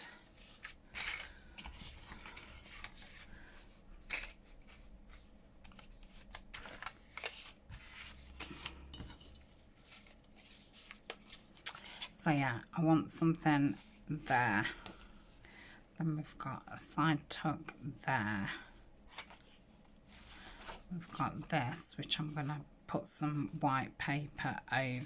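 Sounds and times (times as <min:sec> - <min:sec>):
paper rustling: 0:00.0 - 0:12.2, 0:19.1 - 0:22.4.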